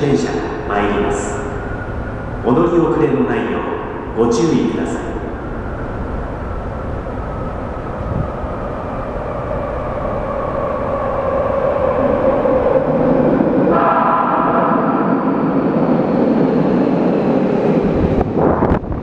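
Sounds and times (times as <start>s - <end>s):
train rumbling into station: 0.0s - 19.0s
humming tone: 5.1s - 18.8s.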